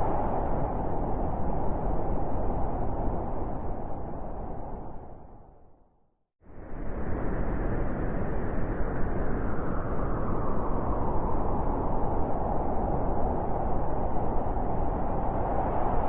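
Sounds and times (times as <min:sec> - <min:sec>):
wind blowing: 0:00.0 - 0:05.6, 0:06.6 - 0:16.0.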